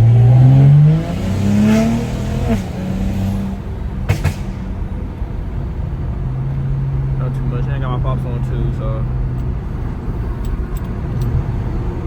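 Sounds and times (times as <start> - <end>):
exhaust cracks: 0.0 - 11.9
car engine accelerating: 0.0 - 12.0.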